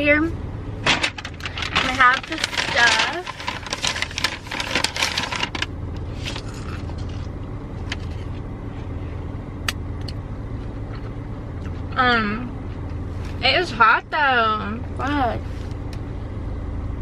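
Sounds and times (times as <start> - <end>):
car engine idling: 0.0 - 17.0
rustling: 0.8 - 7.2.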